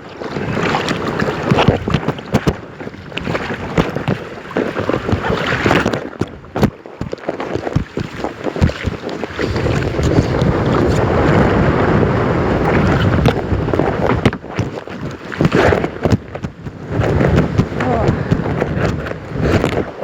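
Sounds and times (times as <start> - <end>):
water splashes: 0.0 - 20.0
wind buffeting microphone: 0.0 - 20.0
kayak knocks: 0.3 - 20.0.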